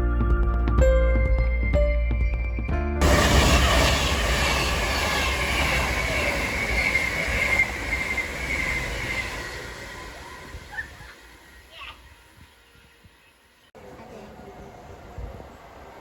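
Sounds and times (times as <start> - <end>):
music: 0.0 - 3.2
high wheel squeal: 3.0 - 13.4
train passing on rails: 3.0 - 16.0.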